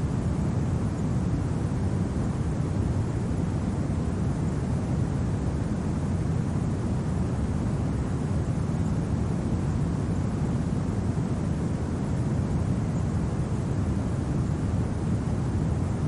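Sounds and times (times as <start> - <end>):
low rumbling wind: 0.0 - 16.0.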